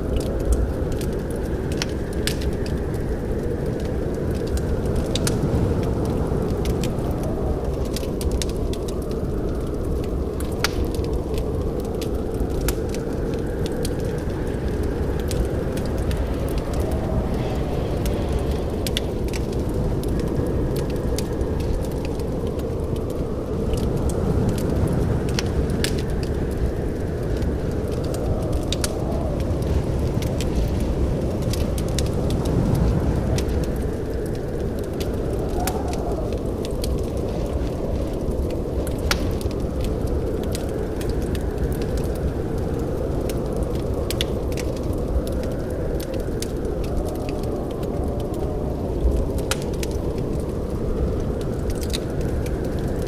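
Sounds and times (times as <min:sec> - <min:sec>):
wood fire crackling: 0:00.0 - 0:53.0
low rumble: 0:09.4 - 0:42.5.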